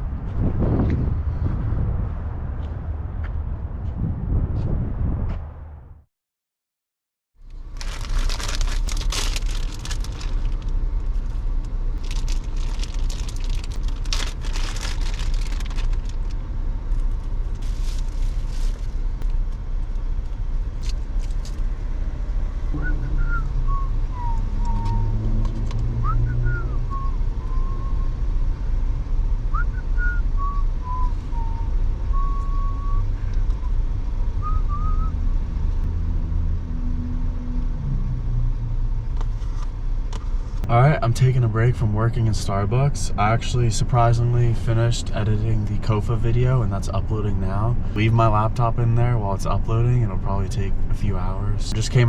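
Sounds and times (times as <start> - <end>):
road traffic rumble: 0.0 - 6.1, 7.4 - 52.0
crackling: 7.4 - 19.6.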